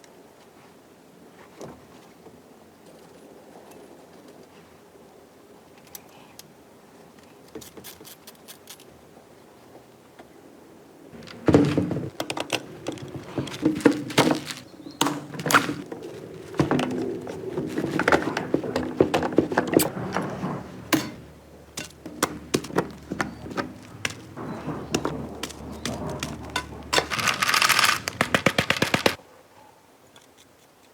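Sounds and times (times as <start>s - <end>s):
metal parts knocking and clinking: 11.2s - 15.8s, 20.8s - 29.2s.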